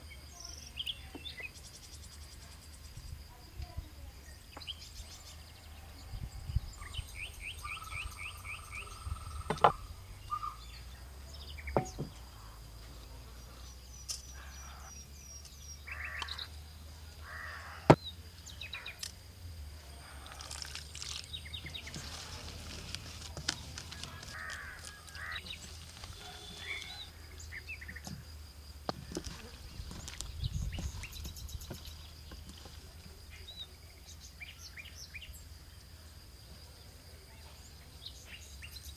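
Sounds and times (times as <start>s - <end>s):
birds chirping: 0.0s - 38.9s
crows calling: 7.6s - 10.8s, 14.2s - 15.0s, 15.8s - 16.5s, 17.2s - 18.0s, 23.9s - 27.2s
sharp knocks: 11.8s - 12.2s.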